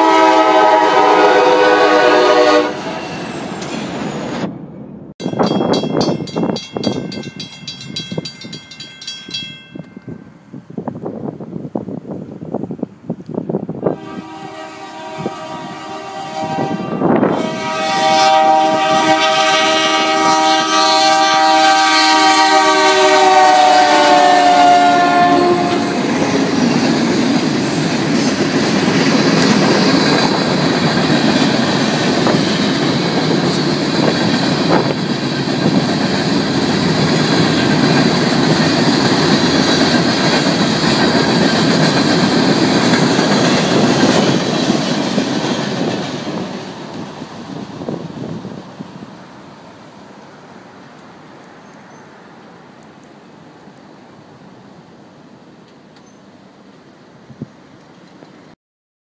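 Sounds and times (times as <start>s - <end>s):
locomotive air horn blast: 0.0s - 3.3s, 13.9s - 26.6s
freight train rumbling and clattering: 0.0s - 21.5s, 22.4s - 50.5s.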